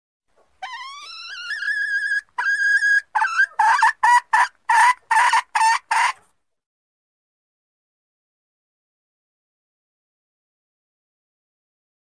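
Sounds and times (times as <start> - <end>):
junglefowl hen calling: 0.6 - 6.3.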